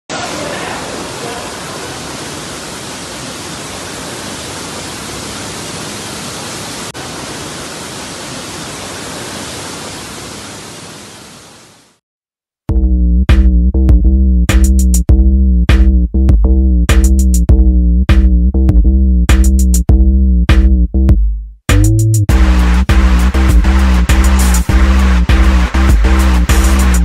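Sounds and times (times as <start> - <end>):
rainwater pouring through roof: 0.1 - 11.7.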